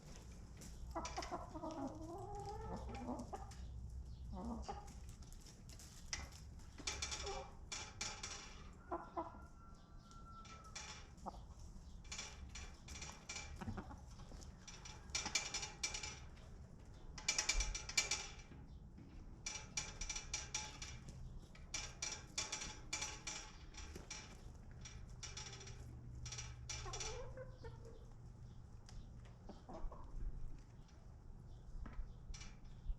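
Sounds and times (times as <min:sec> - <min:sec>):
chickens clucking and squawking: 0:00.6 - 0:05.4, 0:06.7 - 0:07.6, 0:08.6 - 0:12.1, 0:12.7 - 0:15.8, 0:26.6 - 0:32.2.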